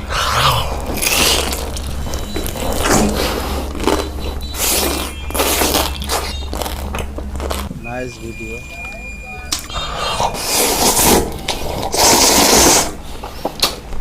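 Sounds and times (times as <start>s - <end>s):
crunchy chewing of food: 0.0s - 7.8s, 9.5s - 14.0s
steady low hum: 0.0s - 14.0s.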